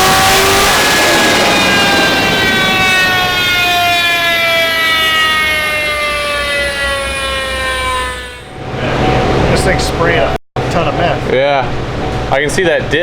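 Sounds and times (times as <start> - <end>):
car engine winding down: 0.0 - 8.6.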